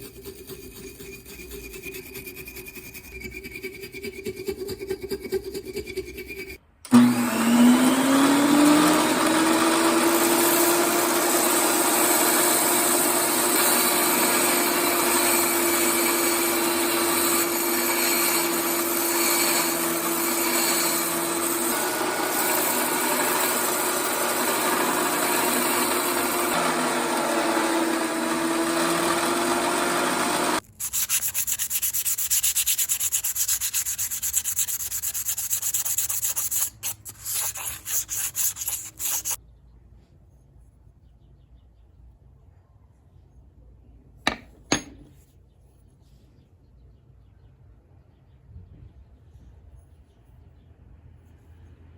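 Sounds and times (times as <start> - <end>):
hand sanding scraping: 0.0 - 6.6, 30.6 - 39.4
power tool grinding metal: 6.9 - 31.1.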